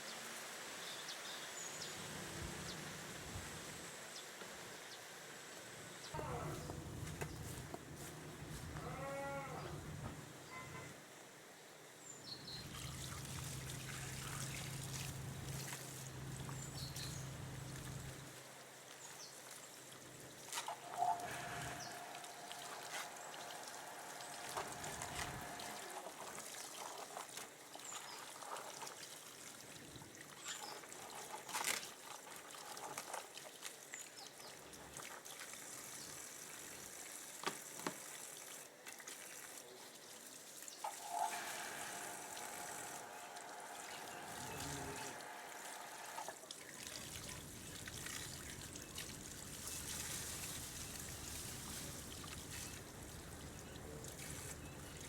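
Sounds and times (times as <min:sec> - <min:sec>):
water pouring and trickling: 0:12.3 - 0:55.0.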